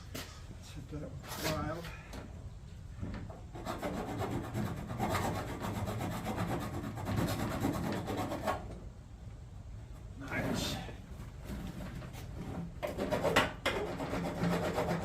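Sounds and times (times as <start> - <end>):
hand file scraping metal: 3.5 - 8.7, 12.3 - 15.0.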